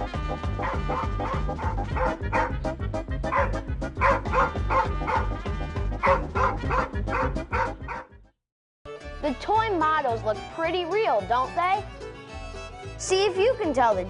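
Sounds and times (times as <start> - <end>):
music with steady bass beat: 0.0 - 7.9
dog barking: 0.6 - 2.6, 3.3 - 5.4, 6.0 - 8.1.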